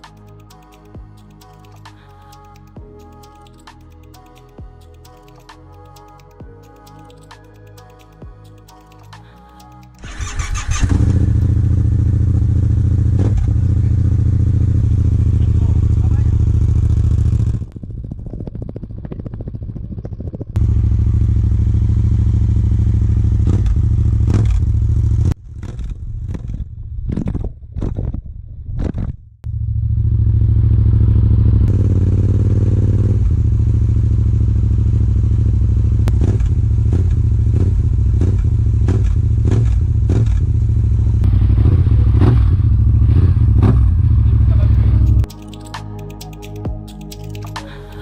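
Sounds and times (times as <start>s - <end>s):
motorcycle engine idling: 10.0s - 25.3s, 29.5s - 45.3s.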